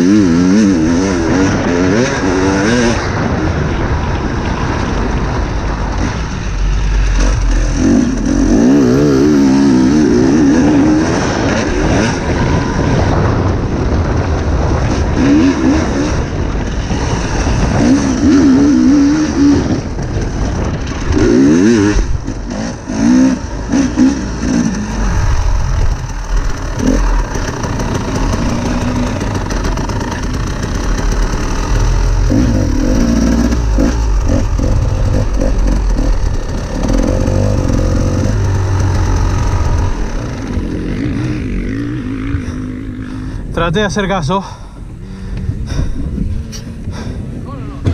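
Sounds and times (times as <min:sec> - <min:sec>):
dirt bike engine revving: 0:00.0 - 0:47.9
wind rumble on microphone: 0:00.0 - 0:47.9.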